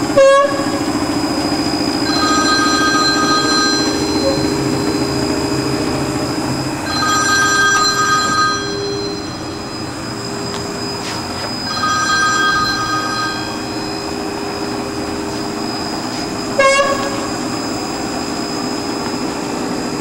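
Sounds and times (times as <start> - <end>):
high machine squeal: 0.0 - 20.0
machining center humming: 0.0 - 20.0
short sharp squeak: 10.5 - 11.8.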